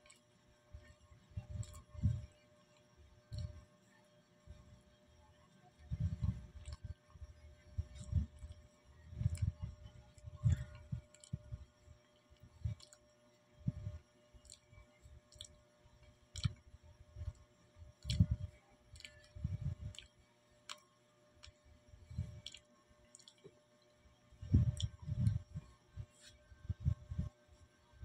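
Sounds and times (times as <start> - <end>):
person chewing banana: 1.5 - 2.2, 12.7 - 13.0, 14.4 - 14.7, 15.3 - 15.6, 16.3 - 16.6, 18.0 - 21.6, 22.2 - 23.5, 24.5 - 25.4.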